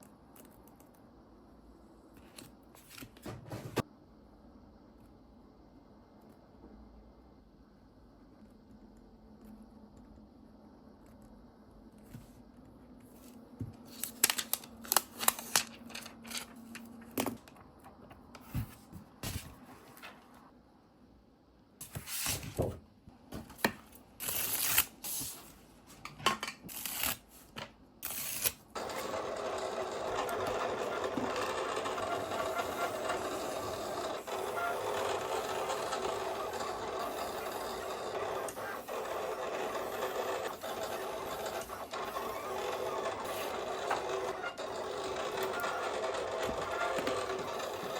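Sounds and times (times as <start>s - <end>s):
small machine running: 28.0s - 47.9s.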